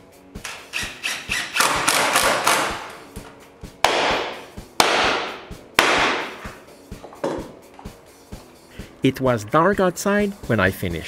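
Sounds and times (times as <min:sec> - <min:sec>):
faint background music: 0:00.0 - 0:11.0
hammer nailing wooden planks: 0:01.1 - 0:03.0, 0:03.8 - 0:06.6.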